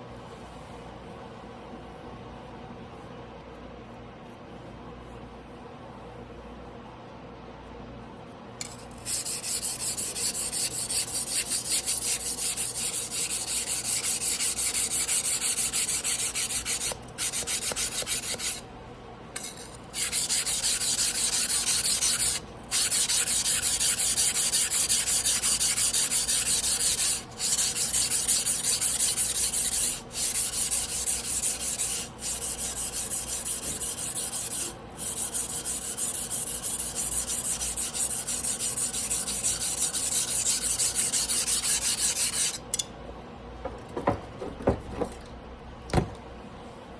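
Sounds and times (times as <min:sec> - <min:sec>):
knife grinding on whetstone: 0:08.6 - 0:18.6, 0:19.4 - 0:42.8.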